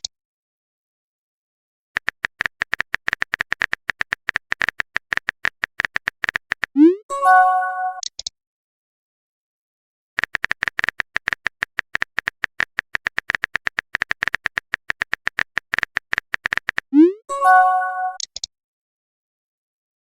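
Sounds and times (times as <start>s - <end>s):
smartphone keyboard taps: 2.0s - 6.7s, 10.2s - 16.9s
multi-note chime: 7.2s - 8.0s, 17.3s - 18.2s.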